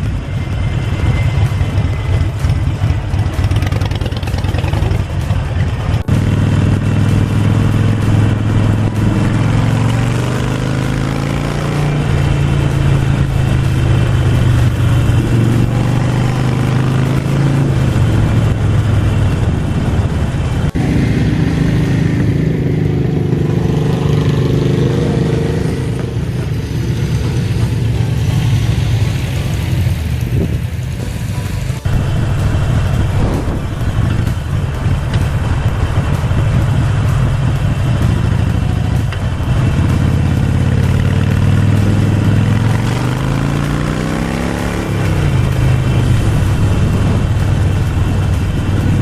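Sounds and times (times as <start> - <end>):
motorcycle engine accelerating: 0.0 - 49.0
wind noise: 11.1 - 49.0.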